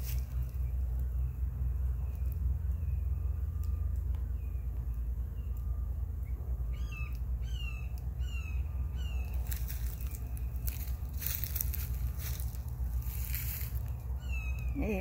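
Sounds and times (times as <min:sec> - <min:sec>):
rustling crackling noise: 0:00.0 - 0:01.1, 0:09.2 - 0:15.0
bird chirping: 0:00.0 - 0:15.0.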